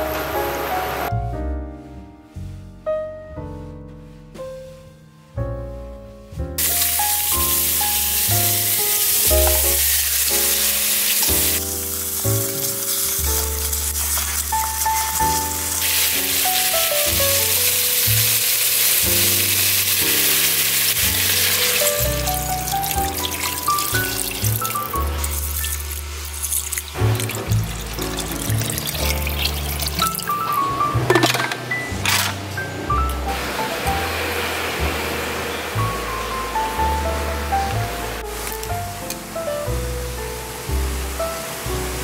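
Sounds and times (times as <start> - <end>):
background music: 0.0 - 42.0
bones sizzling in oil: 6.6 - 31.5.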